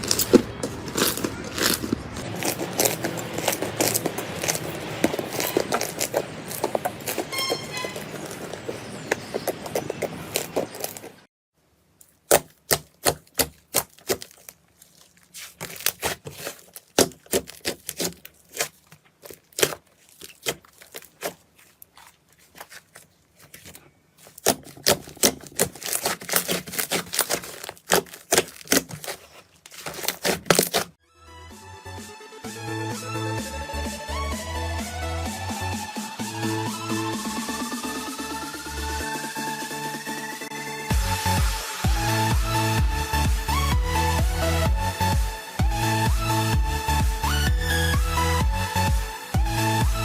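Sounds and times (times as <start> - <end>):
slime clicking and popping: 12.0 - 14.6, 15.3 - 30.8.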